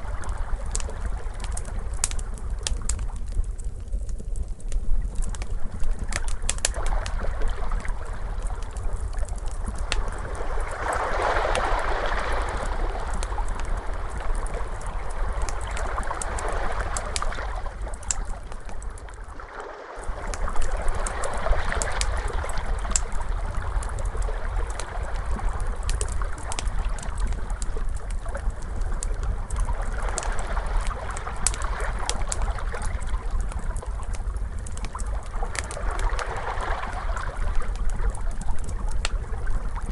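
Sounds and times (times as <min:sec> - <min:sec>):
wood fire popping and crackling: 0:00.0 - 0:19.3, 0:20.0 - 0:39.9
ocean waves washing in: 0:10.0 - 0:17.8, 0:19.1 - 0:23.0.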